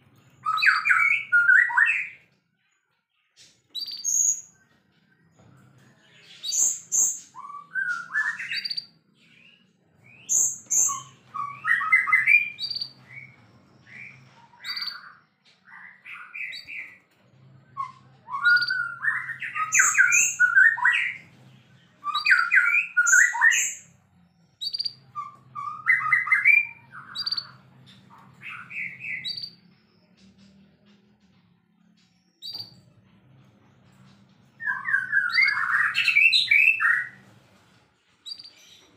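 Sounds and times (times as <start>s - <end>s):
bird singing whistles and trills: 0.4s - 2.2s, 3.7s - 4.6s, 6.4s - 17.0s, 17.7s - 21.4s, 22.0s - 23.9s, 24.6s - 29.7s, 34.6s - 37.2s.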